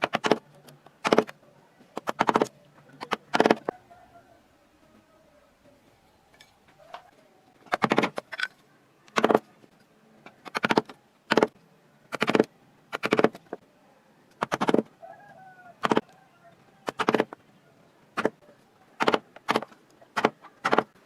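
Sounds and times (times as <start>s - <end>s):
carving tool cutting wood: 2.0s - 2.5s, 3.1s - 3.7s, 10.5s - 13.4s, 14.4s - 14.9s, 15.8s - 16.0s, 16.8s - 17.4s, 19.0s - 20.9s.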